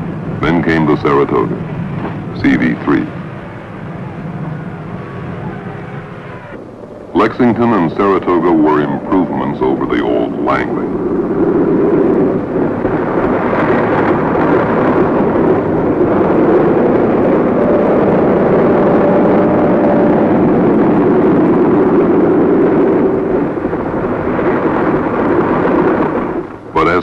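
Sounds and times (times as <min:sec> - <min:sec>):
faint wavering humming tones: 0:00.0 - 0:13.8
loud engine drone: 0:00.0 - 0:21.4.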